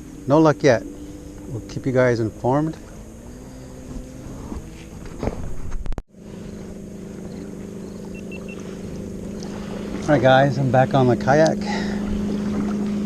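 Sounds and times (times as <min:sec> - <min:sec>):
distant motorboat engine drone: 0:00.0 - 0:13.0
faint short beeps: 0:07.8 - 0:08.6.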